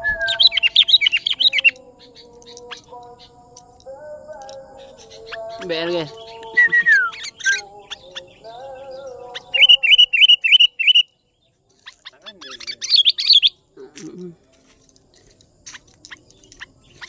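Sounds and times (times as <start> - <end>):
bird falling whistle: 0.0 - 1.3
bird chirps: 0.0 - 13.8, 15.2 - 17.0.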